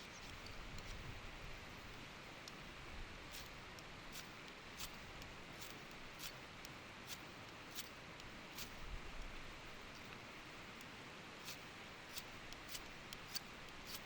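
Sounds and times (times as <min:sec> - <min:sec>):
sharp small clicks: 0:02.4 - 0:02.6, 0:03.3 - 0:14.0.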